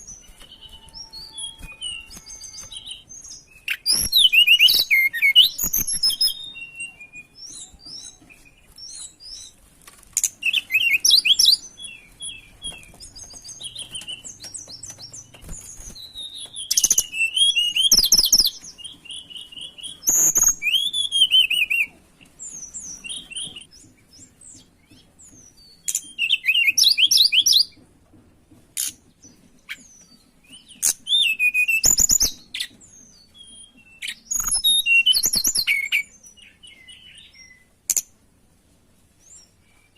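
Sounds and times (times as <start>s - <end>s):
bird chirping and twittering: 0.0s - 27.9s, 28.8s - 38.2s.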